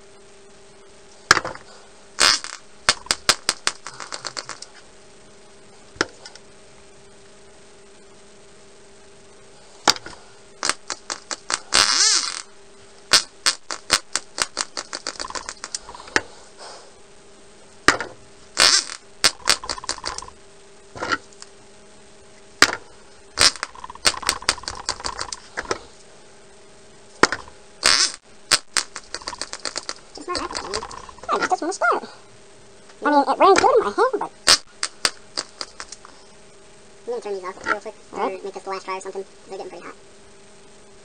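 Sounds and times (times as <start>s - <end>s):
model engine popping: 23.4s - 25.4s.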